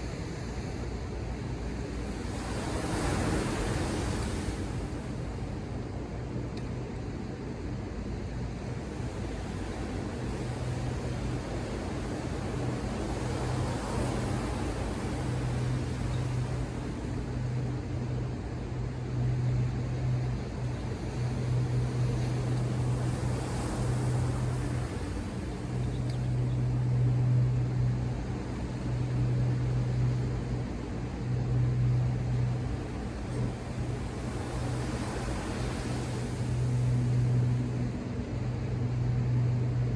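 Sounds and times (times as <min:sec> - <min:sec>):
ocean surf washing: 0:01.8 - 0:05.5, 0:08.9 - 0:19.9, 0:20.8 - 0:39.9
low hum: 0:15.4 - 0:39.9.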